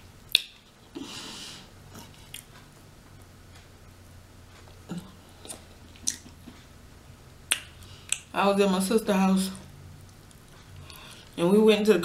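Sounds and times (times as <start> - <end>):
person chewing: 1.9 - 3.6, 4.5 - 6.7, 7.5 - 8.3.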